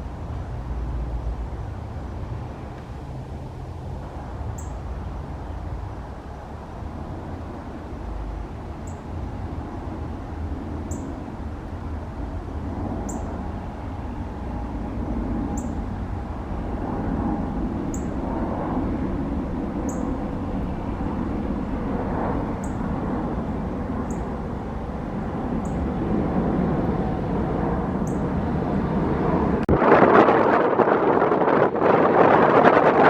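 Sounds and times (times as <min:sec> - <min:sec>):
aircraft engine with whine: 0:00.0 - 0:33.0
wind rumbling on microphone: 0:00.0 - 0:33.0
faint high chirp: 0:04.6 - 0:04.8, 0:08.8 - 0:09.1, 0:10.9 - 0:11.1.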